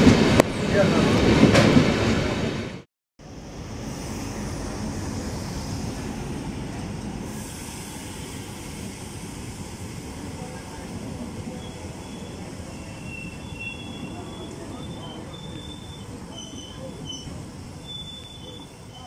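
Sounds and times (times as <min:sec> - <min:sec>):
diesel train passing: 0:00.0 - 0:19.0
faint wheel squeal: 0:11.5 - 0:19.0.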